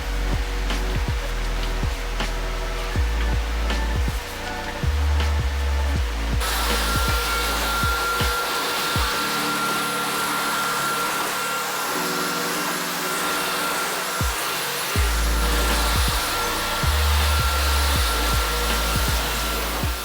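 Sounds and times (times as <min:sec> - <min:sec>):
background music: 0:00.0 - 0:20.0
vacuum cleaner running: 0:00.0 - 0:20.0.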